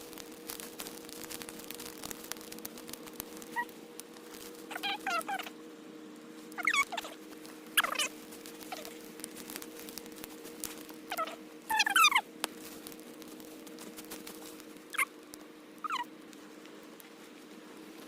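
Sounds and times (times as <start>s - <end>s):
brush fire crackling and popping: 0.0s - 18.0s
squeaky downward sliding calls: 4.7s - 5.5s, 6.6s - 7.2s, 7.8s - 8.1s, 11.1s - 12.2s, 15.8s - 16.1s.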